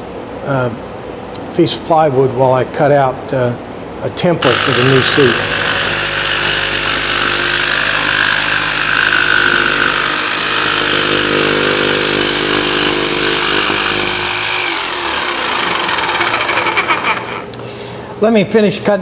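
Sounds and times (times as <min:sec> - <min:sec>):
electric power saw cutting plywood: 0:04.4 - 0:17.5.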